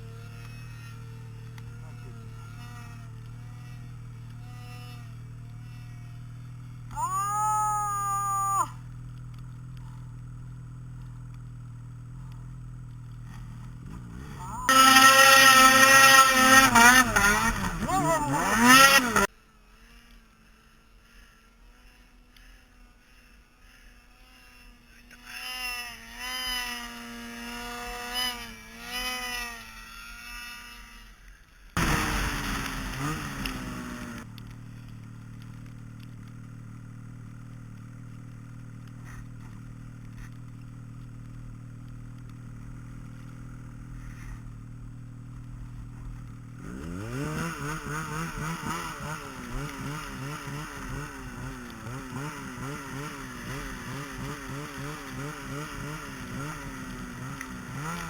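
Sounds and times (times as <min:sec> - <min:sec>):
vehicle engine revving: 0:00.0 - 0:19.3, 0:31.8 - 0:58.0.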